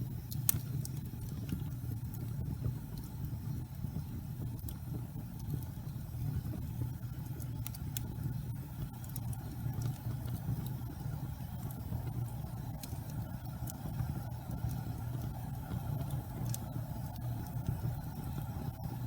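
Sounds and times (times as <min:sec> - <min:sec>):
fire low rumble: 0:00.0 - 0:19.0
logs crackling and popping: 0:00.1 - 0:19.0.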